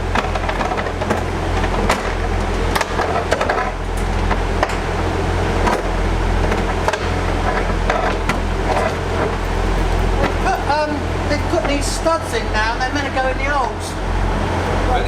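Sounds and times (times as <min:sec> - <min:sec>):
metal ramp knocks and clanks: 0:00.0 - 0:04.9, 0:05.6 - 0:10.6
train idling hum: 0:00.0 - 0:15.0.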